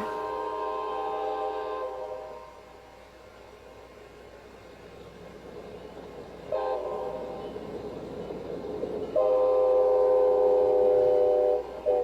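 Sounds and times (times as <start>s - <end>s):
train horn blast: 0.0s - 2.9s, 6.5s - 7.6s, 9.1s - 12.0s
train running: 0.0s - 12.0s.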